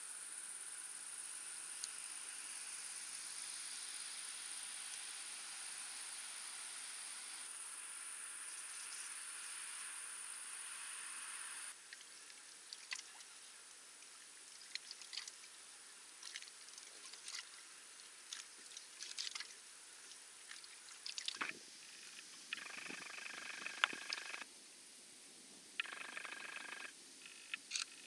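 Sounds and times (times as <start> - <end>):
insect stridulation hiss: 0.0 - 24.5, 25.8 - 28.0
short high insect chirps: 21.4 - 24.4, 25.8 - 28.0.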